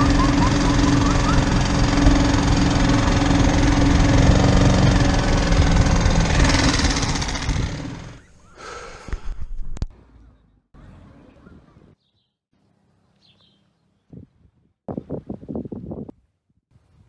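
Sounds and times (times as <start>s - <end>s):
boat engine running: 0.0s - 8.4s.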